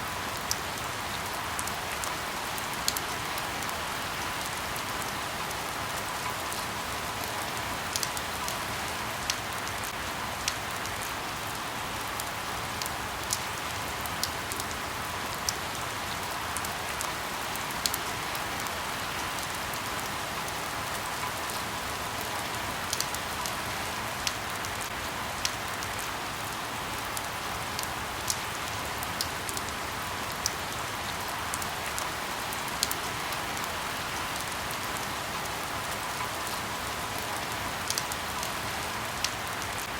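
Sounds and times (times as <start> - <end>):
light rain falling on leaves: 0.0 - 39.9
raindrops ticking: 7.9 - 8.6, 37.4 - 38.6.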